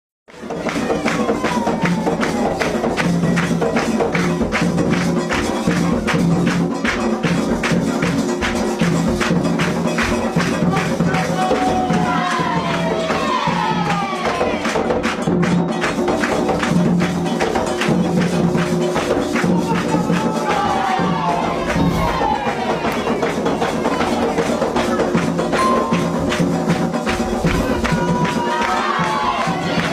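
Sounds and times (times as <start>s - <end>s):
jingling percussion beat: 0.3s - 29.9s
voices singing: 11.1s - 14.6s, 19.6s - 29.9s.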